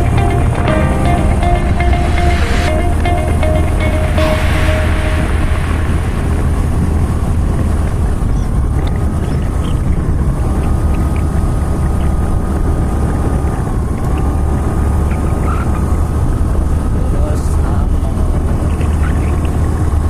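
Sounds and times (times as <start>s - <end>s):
wind rumble on microphone: 5.3s - 20.0s.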